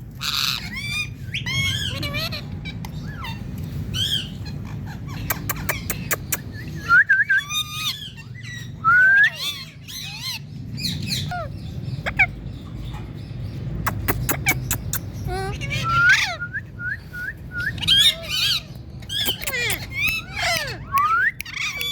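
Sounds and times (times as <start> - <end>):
parakeet chirping and whistling: 13.8 - 18.6, 19.2 - 21.9
sharp clicks: 13.9 - 15.0
short squawky calls: 17.6 - 21.9.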